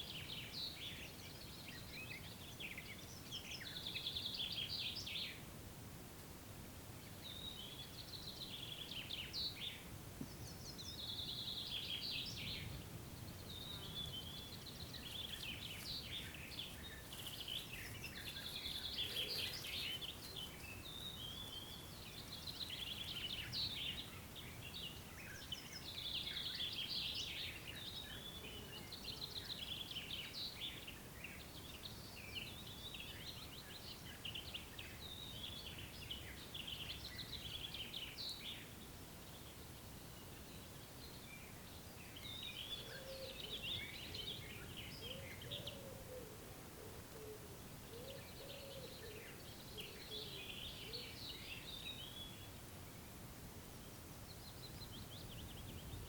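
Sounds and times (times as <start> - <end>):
songbirds singing trilled phrases: 7.0 - 46.3, 47.5 - 52.6.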